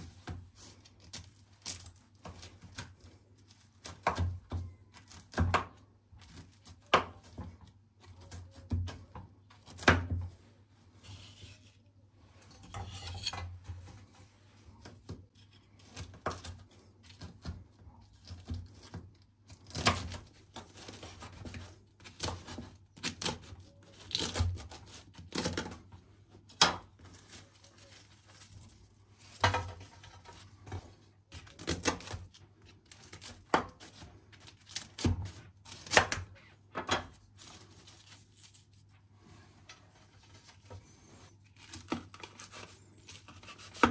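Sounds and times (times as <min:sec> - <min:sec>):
rubbing and scraping: 0:10.6 - 0:17.4.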